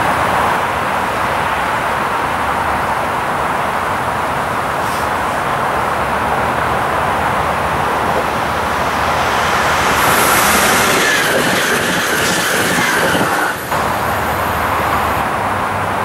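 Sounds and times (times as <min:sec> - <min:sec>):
train wheel and rail noise: 0:00.0 - 0:16.0
high wheel squeal: 0:07.7 - 0:15.3.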